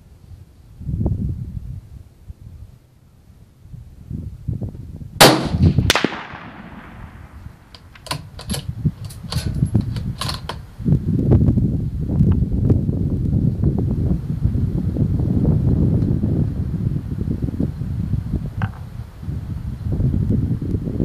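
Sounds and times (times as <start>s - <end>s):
wind noise on microphone: 0.0s - 21.0s
rifle shot: 5.2s - 7.7s
rifle bolt clicking: 7.7s - 10.6s.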